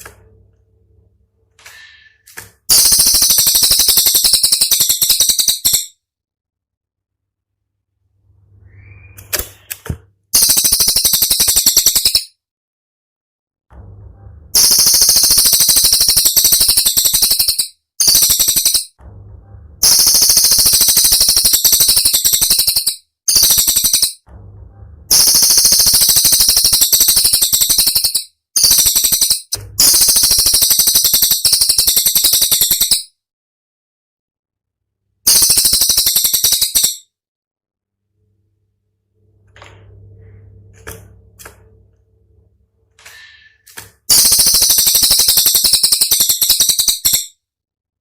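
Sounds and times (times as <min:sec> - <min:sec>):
songbird singing rattling trills: 0:02.7 - 0:06.0, 0:10.4 - 0:12.3, 0:14.6 - 0:18.9, 0:19.8 - 0:24.2, 0:25.1 - 0:33.1, 0:35.3 - 0:37.0, 0:44.1 - 0:47.3.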